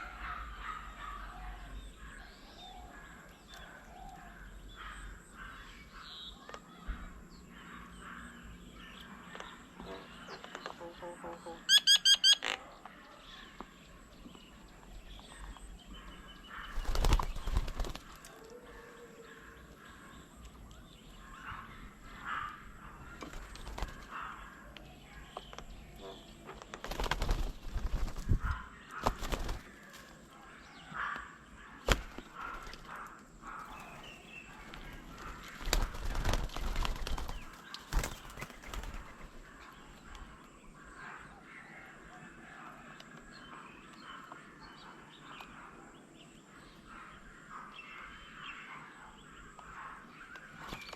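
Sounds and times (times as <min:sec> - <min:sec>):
birds chirping: 0:00.0 - 0:50.9
bird wings flapping: 0:16.7 - 0:18.5, 0:23.2 - 0:24.2, 0:26.6 - 0:30.2, 0:31.8 - 0:33.1, 0:34.6 - 0:39.6.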